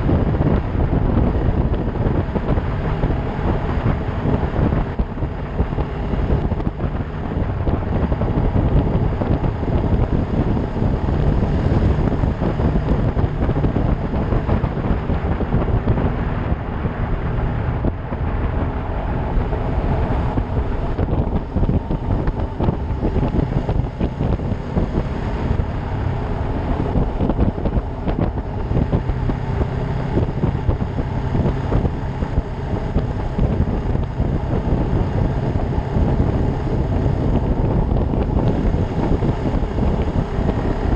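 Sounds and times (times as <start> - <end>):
motorcycle engine running: 0.0 - 40.9
wind rumble on microphone: 0.0 - 40.9.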